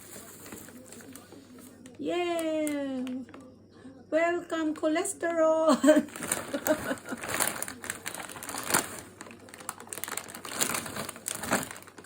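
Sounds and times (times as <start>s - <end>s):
plastic packages crinkling: 0.0s - 3.3s, 5.7s - 12.0s.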